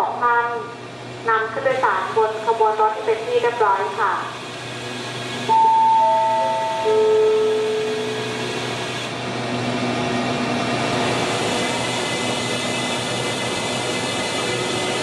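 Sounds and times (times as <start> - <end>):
descending public address chime: 5.5 - 7.7.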